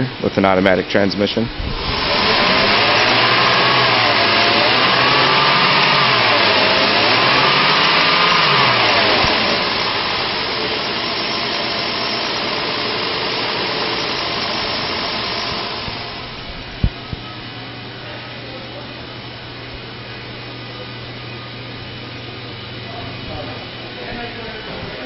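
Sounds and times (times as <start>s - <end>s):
car engine revving and idling: 1.6s - 17.0s.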